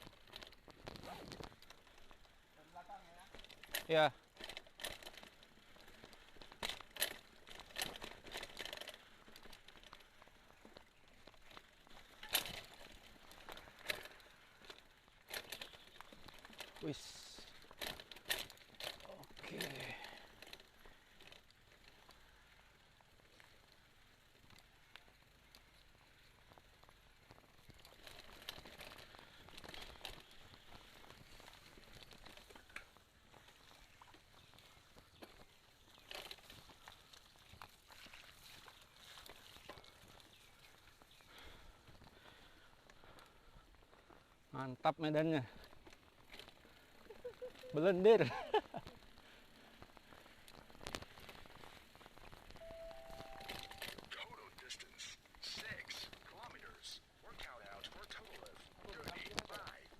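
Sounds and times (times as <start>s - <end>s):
bike rattling over ground: 0.0s - 54.4s, 55.2s - 59.9s
bike tyres crunching on dirt trail: 0.0s - 59.9s.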